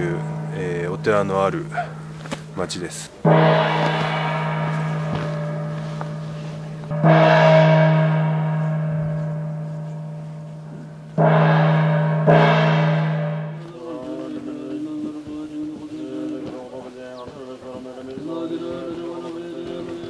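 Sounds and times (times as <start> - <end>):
large gong ringing: 0.0 - 14.6.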